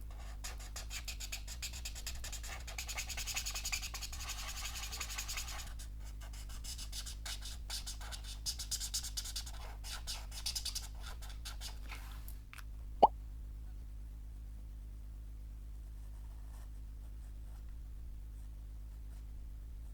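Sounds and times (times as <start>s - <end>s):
pen nib scratching paper: 0.5s - 5.7s.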